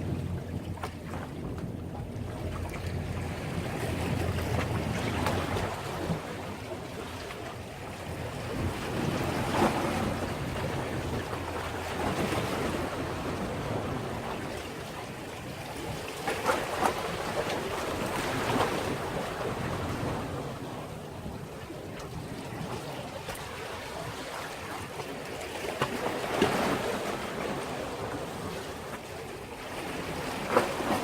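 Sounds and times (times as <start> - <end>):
wind buffeting microphone: 0.0 - 24.3
sea waves washing against breakwater: 0.0 - 31.0.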